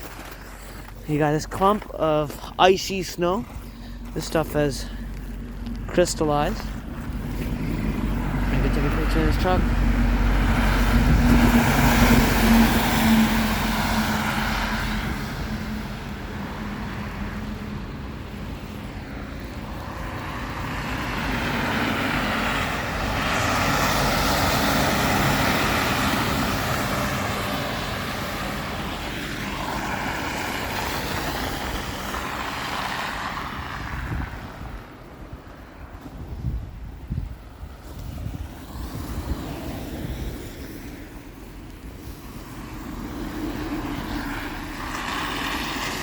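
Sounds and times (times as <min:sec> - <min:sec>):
vehicle tyres on snowy road: 0:00.0 - 0:46.0
truck engine passing: 0:00.8 - 0:18.6, 0:19.6 - 0:35.0, 0:42.4 - 0:46.0.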